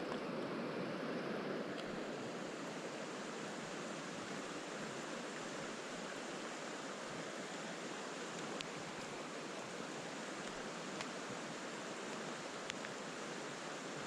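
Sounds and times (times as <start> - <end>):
stream water rushing: 0.0 - 14.0
faint sharp clicks: 8.3 - 9.1, 10.4 - 11.2, 12.1 - 13.0.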